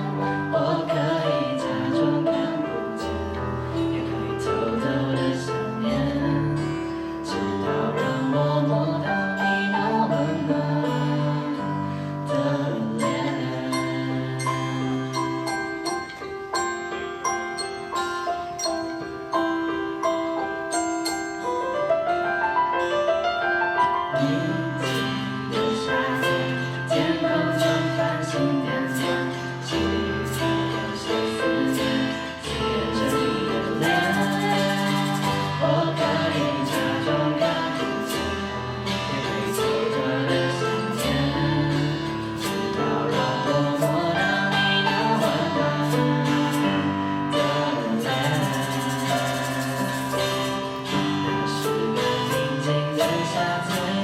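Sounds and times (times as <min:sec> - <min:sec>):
person singing: 0:00.0 - 0:16.3, 0:23.2 - 0:54.0
guitar: 0:00.0 - 0:54.0
keyboard: 0:00.0 - 0:54.0
drumbeat: 0:48.2 - 0:50.7.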